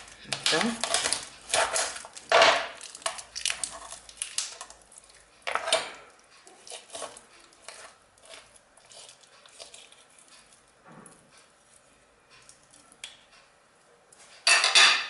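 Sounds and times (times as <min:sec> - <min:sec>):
dishes and utensils clattering: 0:14.4 - 0:15.0.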